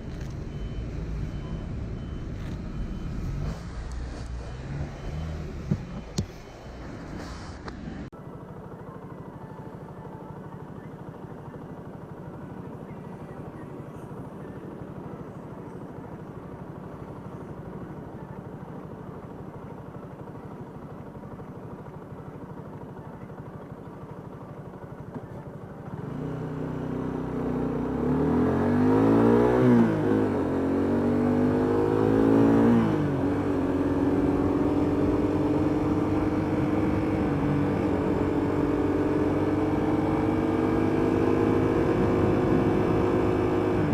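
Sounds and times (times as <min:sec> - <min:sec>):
motorcycle engine revving: 0:00.0 - 0:07.2, 0:25.8 - 0:43.9.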